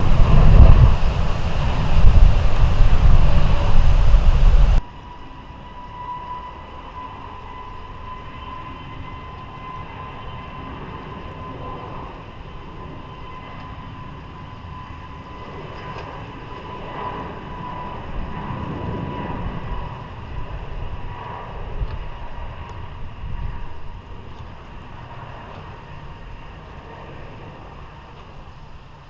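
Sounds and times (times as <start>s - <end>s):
loud jet rumble: 0.0s - 4.8s
jet engines whining at low power: 0.0s - 29.0s.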